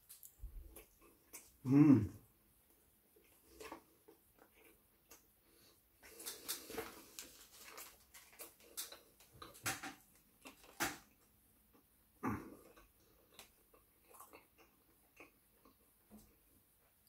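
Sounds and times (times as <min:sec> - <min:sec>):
chewing with wet clicks: 0:03.2 - 0:05.4, 0:07.7 - 0:11.9, 0:12.5 - 0:17.0.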